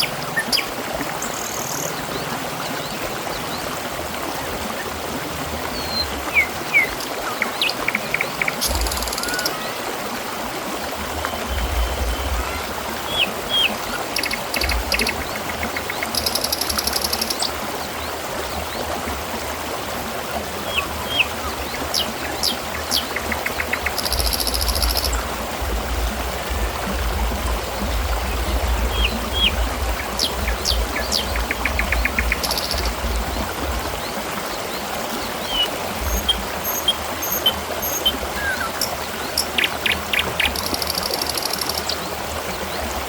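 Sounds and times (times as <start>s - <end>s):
water trickling and splashing: 0.0s - 43.0s
bird chirps and trills: 35.4s - 42.0s.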